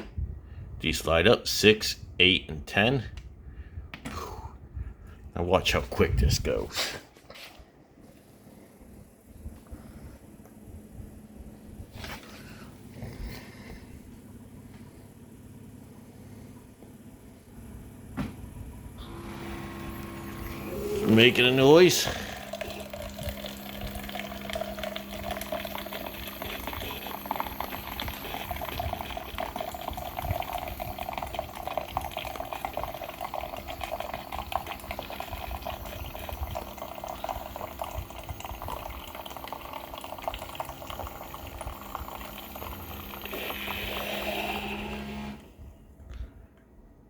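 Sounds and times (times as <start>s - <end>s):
coffee brewer humming: 9.3s - 45.7s
brewer hiss: 19.0s - 45.4s
hot water gurgling and sputtering: 19.0s - 45.4s.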